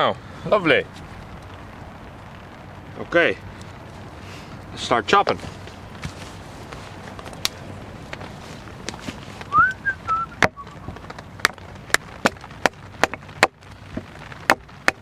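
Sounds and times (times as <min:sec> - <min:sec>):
rising wavering whistle: 0:09.5 - 0:10.9
axe chopping wood: 0:11.4 - 0:15.0.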